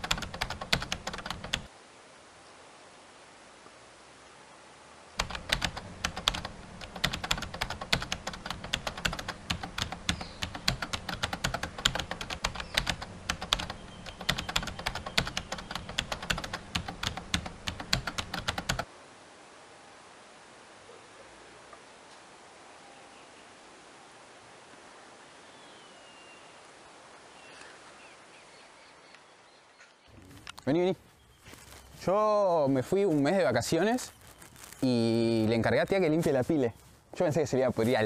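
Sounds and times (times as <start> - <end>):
rapid keyboard typing: 0.0 - 1.7, 5.2 - 18.9
faint steady hiss: 0.0 - 38.0.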